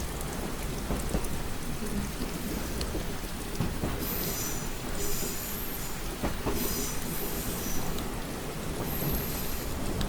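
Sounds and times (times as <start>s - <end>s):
moving train rumble: 0.0s - 10.0s
rain on a train window: 0.0s - 10.0s.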